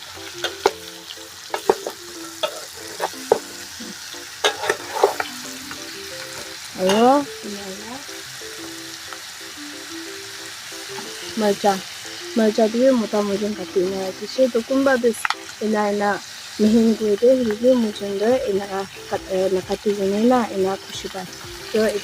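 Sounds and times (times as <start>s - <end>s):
faint background music: 0.0s - 22.0s
food sizzling in oil: 0.0s - 22.0s
spatula scraping a pan: 1.5s - 5.4s.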